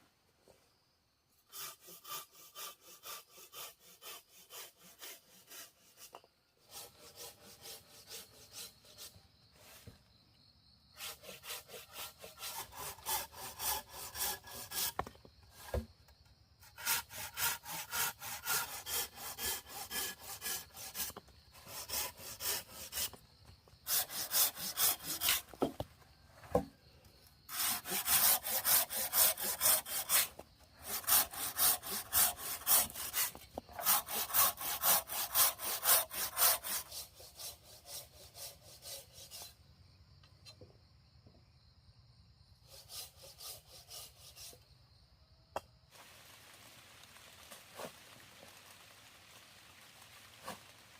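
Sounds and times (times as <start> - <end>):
hand saw cutting wood: 1.5 - 9.2, 11.0 - 15.9, 16.6 - 23.2, 23.8 - 25.8, 27.5 - 39.6, 42.6 - 44.6.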